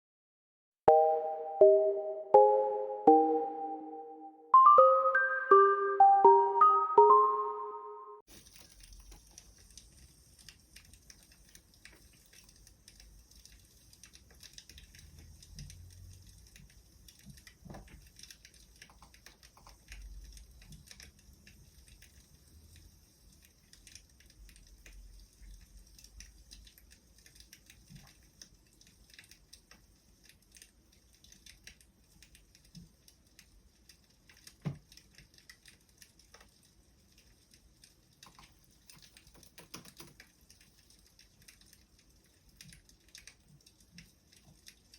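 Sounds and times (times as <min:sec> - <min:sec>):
wood fire crackling: 0:08.3 - 0:39.3, 0:40.1 - 0:44.9.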